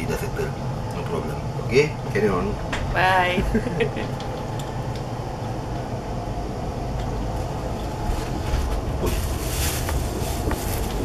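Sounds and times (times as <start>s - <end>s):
train wheels rumbling on rails: 5.7s - 11.0s.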